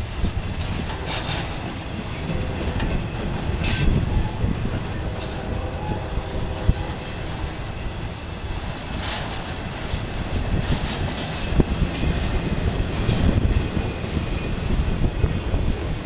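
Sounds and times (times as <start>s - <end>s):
freight train rumbling on rails: 0.0s - 16.0s
sharp knocks of train cars: 0.3s - 5.5s, 8.8s - 15.0s.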